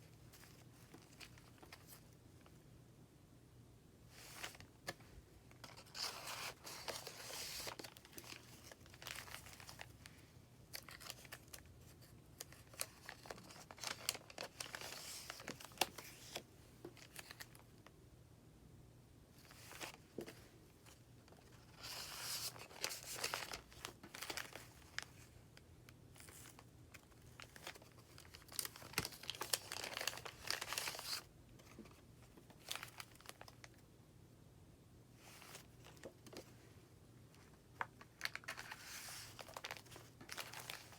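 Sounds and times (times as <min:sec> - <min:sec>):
paper pages rustling: 0:04.1 - 0:17.6, 0:19.4 - 0:25.4, 0:26.2 - 0:33.7, 0:37.4 - 0:40.9.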